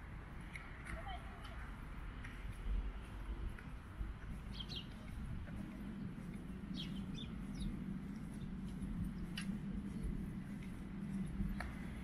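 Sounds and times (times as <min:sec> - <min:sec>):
songbirds chirping: 0:00.1 - 0:12.0
low background rumble: 0:02.8 - 0:12.0.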